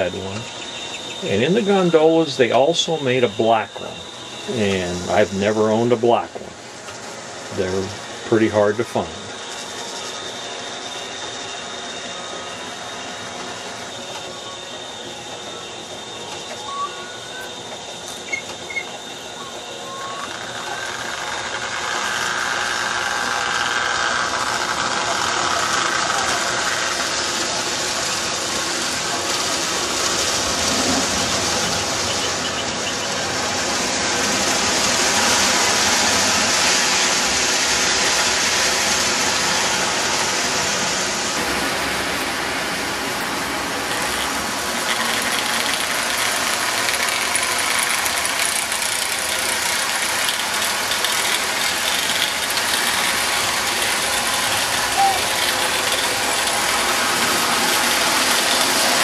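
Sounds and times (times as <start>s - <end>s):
motor hum: 0.0s - 59.0s
toy train wheels clattering on track: 12.6s - 39.5s, 43.1s - 59.0s.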